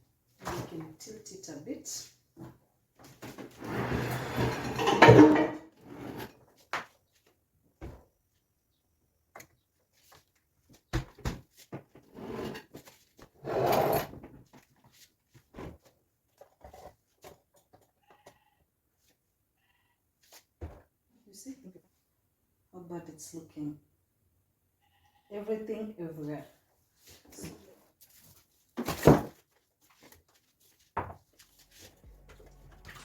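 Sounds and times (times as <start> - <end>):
items scraping and clattering in fridge: 3.1 - 6.5, 31.2 - 33.0.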